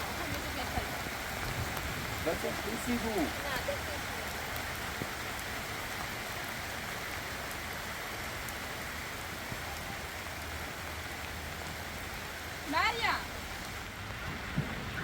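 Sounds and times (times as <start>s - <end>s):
heavy rain on ground: 0.0s - 15.0s.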